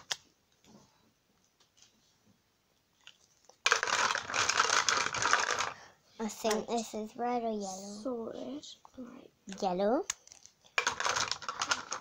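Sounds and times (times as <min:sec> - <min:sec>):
craft materials crinkling: 0:03.0 - 0:05.8, 0:10.2 - 0:12.0.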